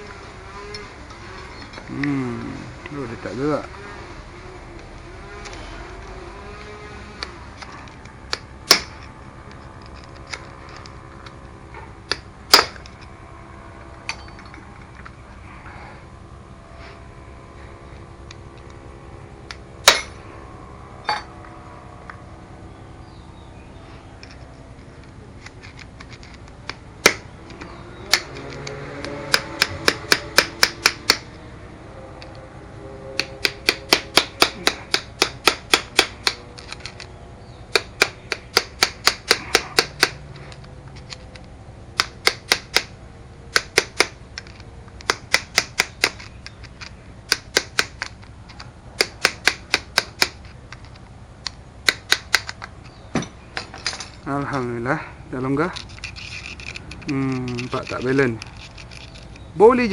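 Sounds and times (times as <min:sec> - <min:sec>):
hand tools clicking on metal: 0:33.2 - 0:37.1, 0:37.7 - 0:42.9, 0:43.5 - 0:53.0, 0:55.8 - 0:59.5.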